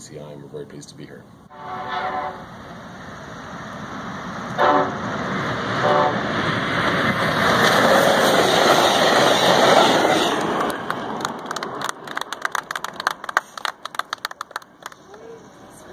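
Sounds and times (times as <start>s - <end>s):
train passing at speed: 1.4s - 15.9s
locomotive horn blasts: 1.5s - 2.6s, 4.6s - 5.0s, 5.8s - 6.3s.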